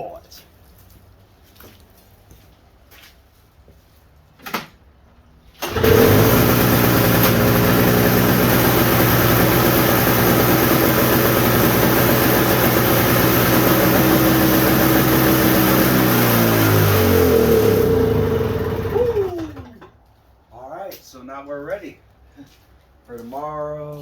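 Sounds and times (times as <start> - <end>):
starter cord pull: 5.6 - 8.6
snowblower engine running: 5.6 - 19.8.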